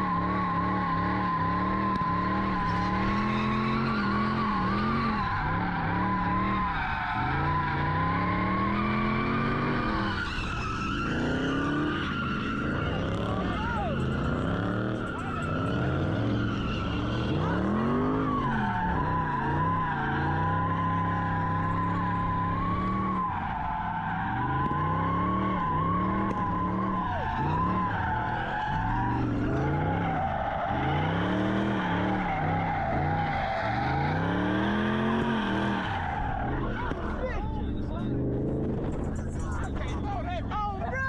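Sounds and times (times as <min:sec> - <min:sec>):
tyres squealing: 0:00.0 - 0:38.0
car engine revving: 0:00.0 - 0:41.0.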